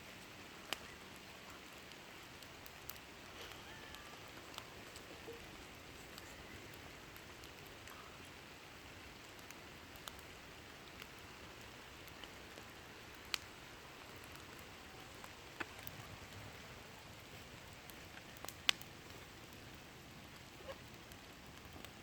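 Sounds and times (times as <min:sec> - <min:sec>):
burning wood crackling and popping: 0:00.0 - 0:22.0
campfire hissing: 0:00.0 - 0:22.0.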